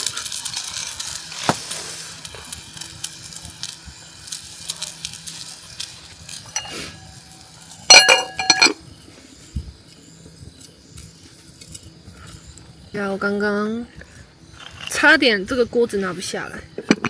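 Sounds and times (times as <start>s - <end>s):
metal cookware clinking: 6.5s - 7.1s, 7.9s - 8.8s
pot and lid clanking: 6.5s - 7.1s, 7.8s - 8.8s, 16.8s - 17.0s.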